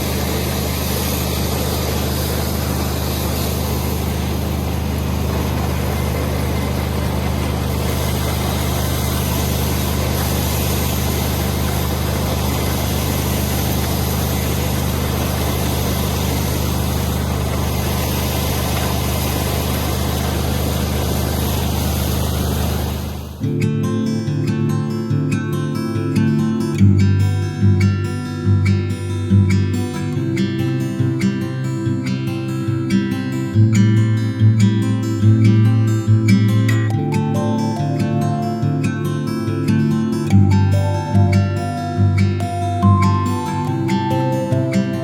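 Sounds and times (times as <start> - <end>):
combine harvester running: 0.0 - 23.5, 36.9 - 45.0.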